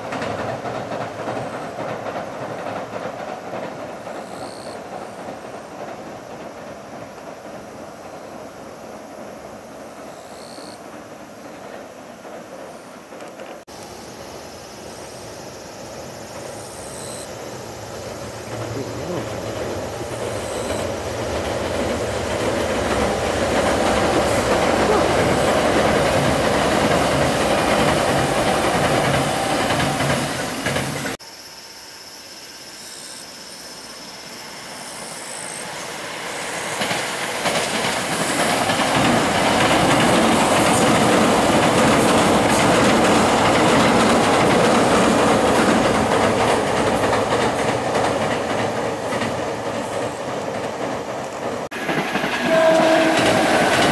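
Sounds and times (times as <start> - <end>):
train rumbling over bridge: 0.0 - 31.2, 33.5 - 53.9
wheels clattering over rail joints: 36.3 - 53.9.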